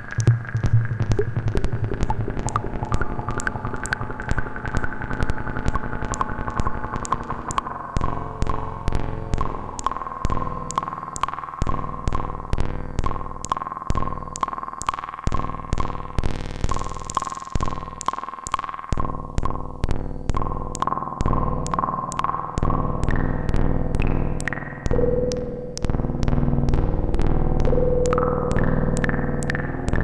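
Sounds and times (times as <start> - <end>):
sustained synth tones: 0.0 - 13.2
synthesizer clicks: 0.0 - 30.0.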